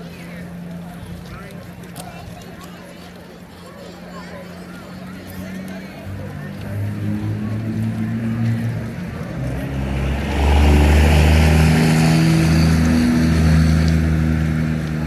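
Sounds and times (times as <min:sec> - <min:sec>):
diesel locomotive engine drone: 0:05.9 - 0:15.0.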